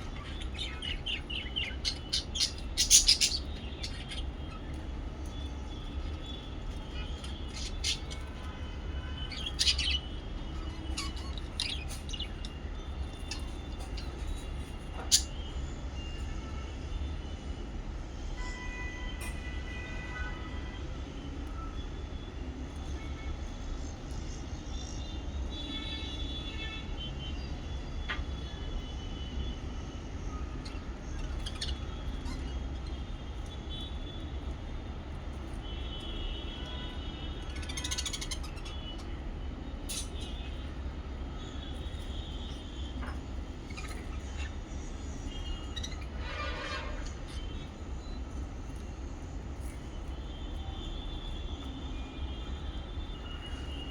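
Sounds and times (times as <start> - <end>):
lovebirds chirping: 0.0 - 15.4, 30.6 - 33.1, 37.3 - 39.2, 41.5 - 48.4.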